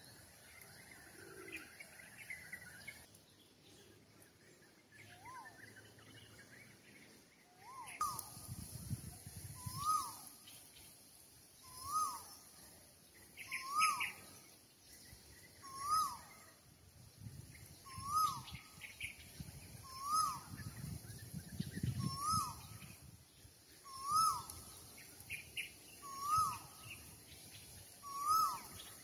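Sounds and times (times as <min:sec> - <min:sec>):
faint bird chirps: 0:00.0 - 0:29.0
bird whistled call: 0:07.6 - 0:08.3, 0:09.6 - 0:10.4, 0:11.6 - 0:12.4, 0:13.4 - 0:14.3, 0:15.6 - 0:16.5, 0:17.8 - 0:19.2, 0:19.8 - 0:20.7, 0:21.6 - 0:23.0, 0:23.8 - 0:27.1, 0:28.0 - 0:29.0.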